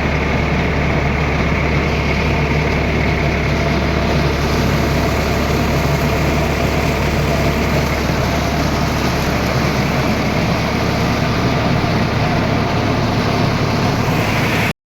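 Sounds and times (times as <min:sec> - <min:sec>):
tractor engine running steadily: 0:00.0 - 0:14.8.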